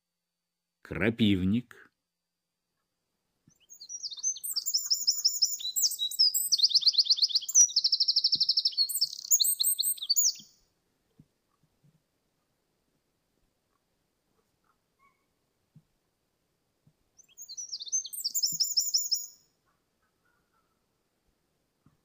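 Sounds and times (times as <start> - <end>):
wren singing trills: 3.5 - 10.6, 17.2 - 19.4.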